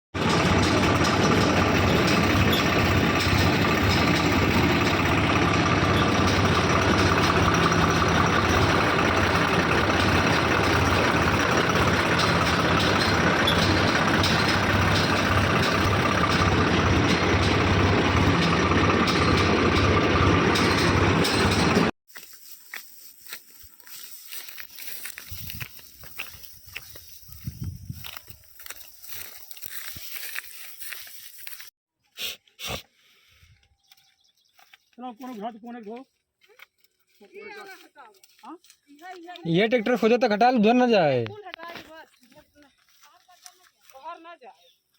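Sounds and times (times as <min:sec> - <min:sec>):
tractor engine drone: 0:00.2 - 0:22.0.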